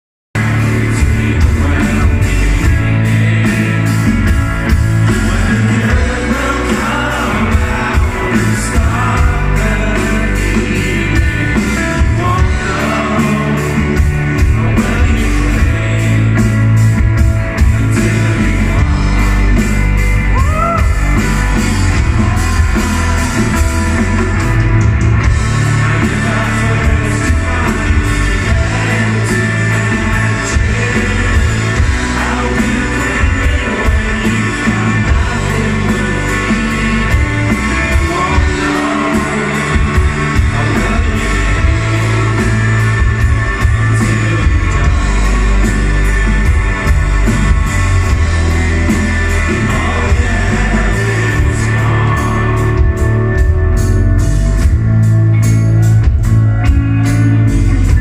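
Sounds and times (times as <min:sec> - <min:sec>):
person singing: 0:00.4 - 0:54.0
rock band playing live: 0:00.4 - 0:58.0.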